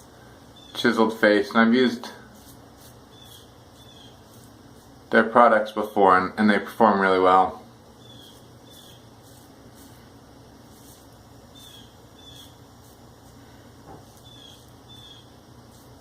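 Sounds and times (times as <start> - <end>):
razor scraping stubble: 1.8 - 5.2, 8.0 - 16.0.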